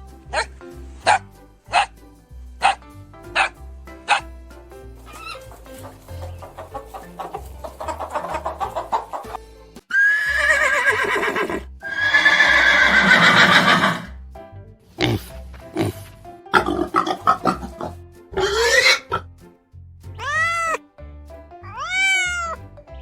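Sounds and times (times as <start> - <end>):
background music: 0.0 - 23.0
horse whinnying: 9.9 - 14.1, 18.4 - 19.2, 20.2 - 20.8, 21.7 - 22.6.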